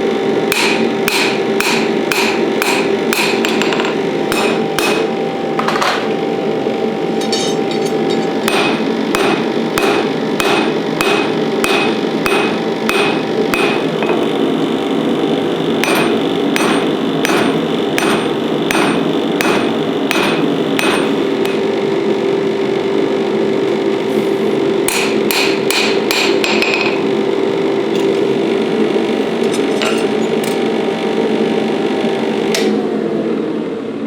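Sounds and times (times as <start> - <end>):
hammer ringing on steel: 0.5 - 5.1, 7.2 - 14.3, 15.8 - 21.7, 24.9 - 27.1.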